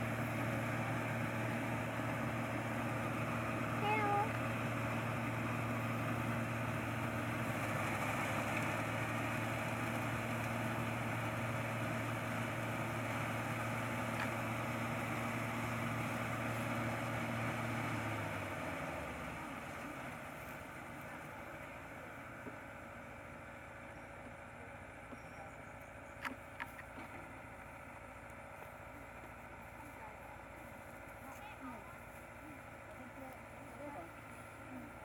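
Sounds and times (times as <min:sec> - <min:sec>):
combine harvester engine running: 0:00.0 - 0:35.0.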